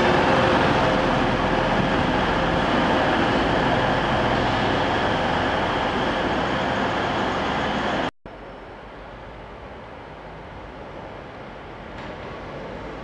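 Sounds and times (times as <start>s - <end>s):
diesel train engine and wheels: 0.0s - 13.0s.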